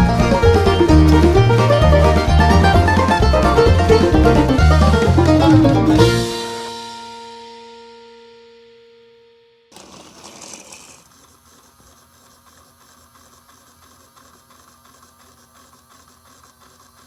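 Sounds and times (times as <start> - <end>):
fast mechanical clatter: 9.7 - 17.0.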